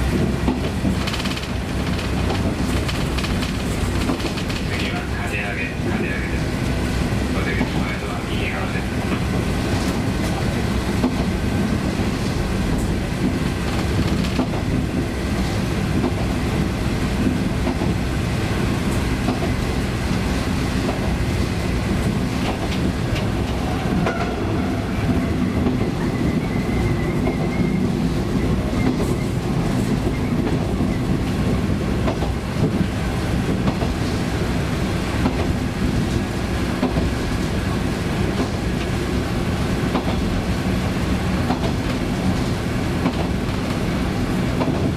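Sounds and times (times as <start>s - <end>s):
wheels rumbling on rail: 0.0s - 44.9s
clicks at rail joints: 0.4s - 4.9s, 13.2s - 14.7s, 39.9s - 40.3s, 41.4s - 43.8s, 44.6s - 44.9s.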